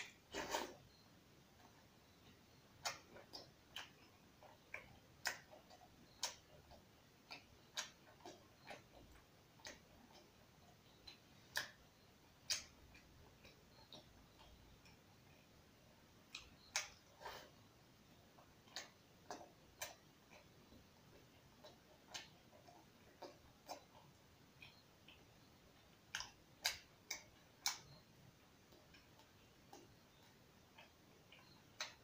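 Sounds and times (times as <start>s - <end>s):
person chewing with wet mouth smacks: 1.7s - 10.4s, 16.3s - 17.5s, 18.3s - 28.0s.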